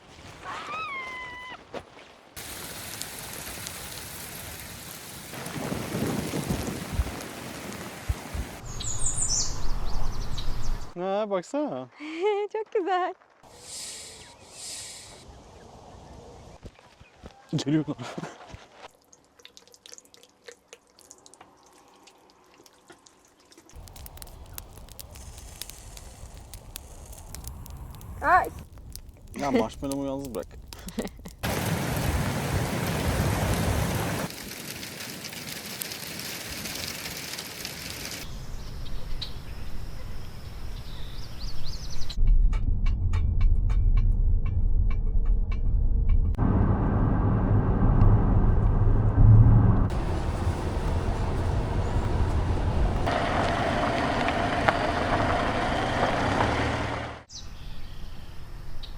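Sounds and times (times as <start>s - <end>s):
heavy rain pouring: 2.4s - 8.6s, 31.4s - 38.3s, 49.8s - 57.3s
thunder rumbling: 5.3s - 8.6s, 31.4s - 34.4s, 46.3s - 57.3s.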